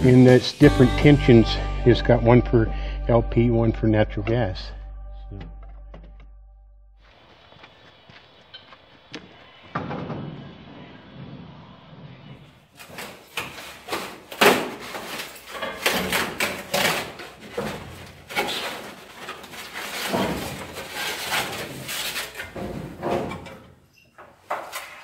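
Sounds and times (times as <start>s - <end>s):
parts and tools clattering: 12.8s - 25.0s.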